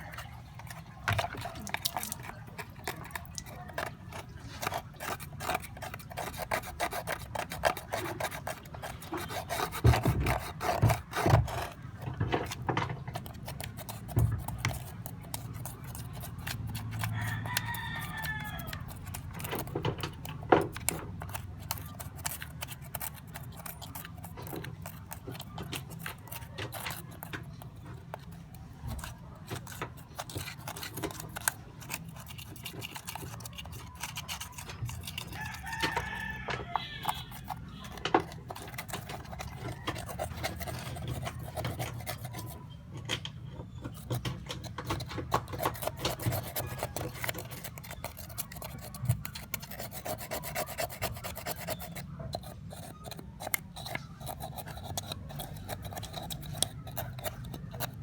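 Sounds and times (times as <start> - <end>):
small clicks and scrapes: 0.0 - 58.0
rooster crowing: 17.0 - 19.0, 35.1 - 38.0.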